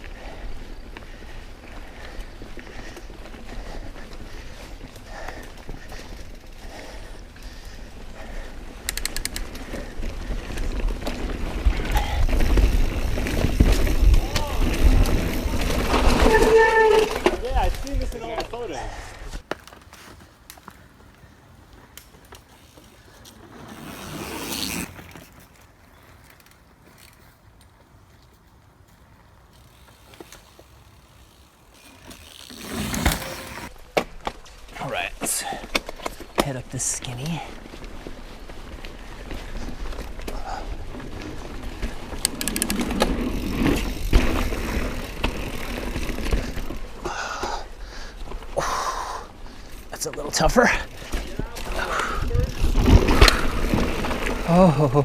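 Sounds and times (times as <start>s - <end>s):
bike clicks and rattles: 0.0s - 55.0s
bike tyres on dirt trail: 0.0s - 55.0s
sharp clicks: 8.8s - 9.6s.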